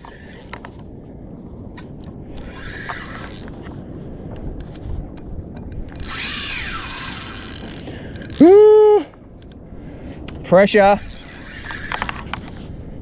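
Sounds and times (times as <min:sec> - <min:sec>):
fishing reel whirring: 0:00.0 - 0:00.8, 0:02.3 - 0:09.6, 0:10.8 - 0:12.5
wind: 0:00.0 - 0:13.0
water noise: 0:02.0 - 0:12.6.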